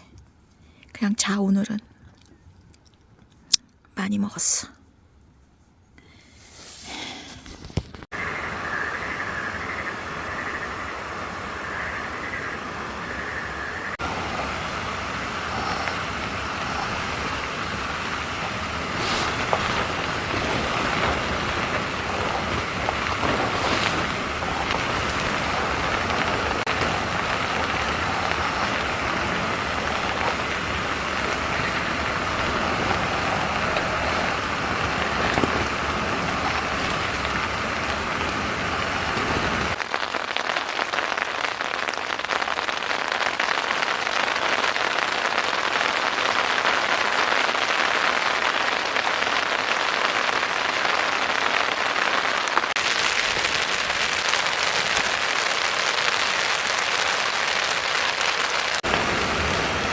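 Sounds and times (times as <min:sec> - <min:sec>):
steady rain falling: 0:08.0 - 0:59.9.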